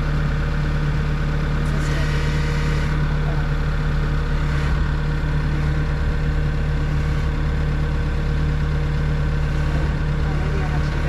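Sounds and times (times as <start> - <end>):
diesel engine humming: 0.0 - 11.0.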